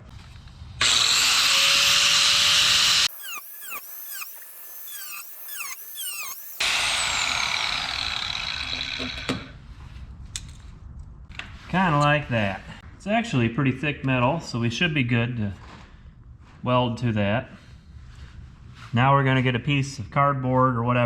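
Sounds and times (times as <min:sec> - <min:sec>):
die grinder cutting steel: 0:00.8 - 0:09.5
short falling squeaky chirps: 0:03.1 - 0:06.6.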